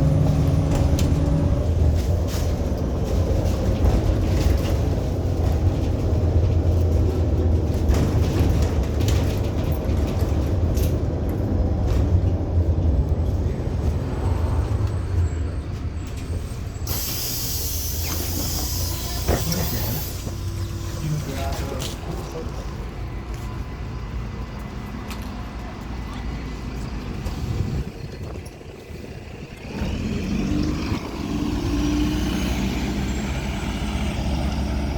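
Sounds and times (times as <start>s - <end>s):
bus engine rumble: 0.0s - 34.9s
compressed air hiss: 16.9s - 20.5s.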